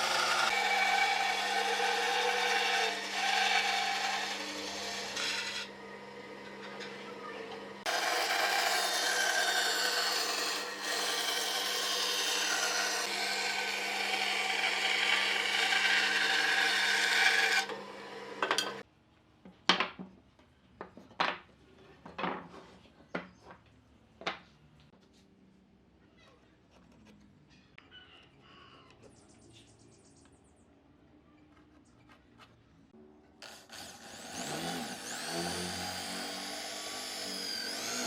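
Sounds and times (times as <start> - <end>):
power tool rasping wood: 0.0 - 18.8, 33.4 - 38.0.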